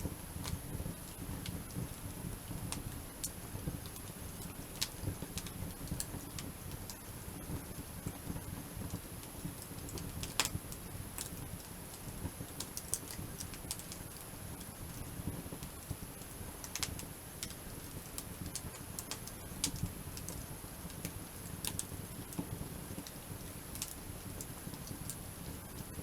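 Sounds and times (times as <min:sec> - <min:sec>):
wood campfire crackling: 0:00.0 - 0:26.0.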